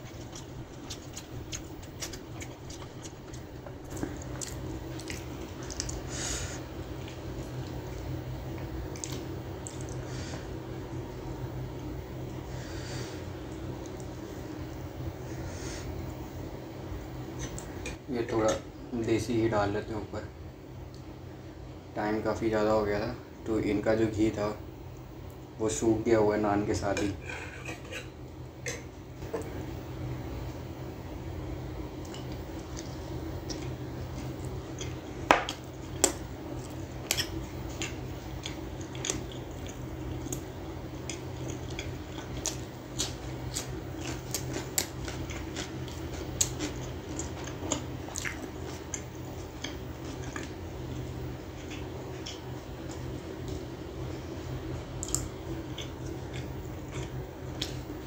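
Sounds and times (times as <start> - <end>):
close chewing and biting: 0.0 - 6.1, 6.8 - 10.0, 32.0 - 53.7, 55.0 - 57.9
low steady hum: 0.0 - 58.0.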